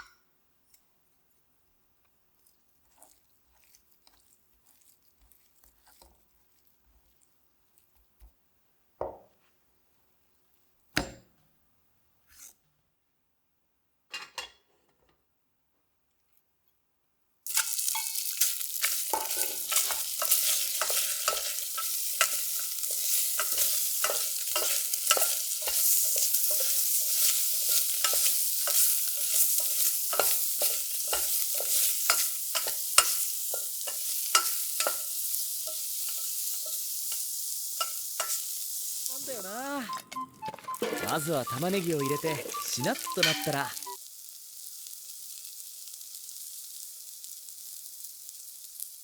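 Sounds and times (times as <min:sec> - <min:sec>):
food sizzling in a pot: 0:02.3 - 0:08.0, 0:17.4 - 0:49.0
stirring utensil clicks and scrapes: 0:02.4 - 0:07.3, 0:17.5 - 0:35.1.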